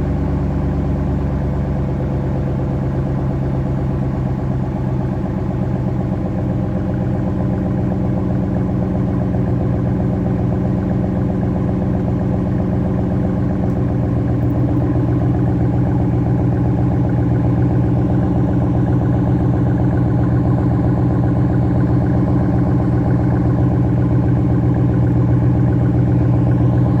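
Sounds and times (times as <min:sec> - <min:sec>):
engine idling: 0:00.0 - 0:27.0.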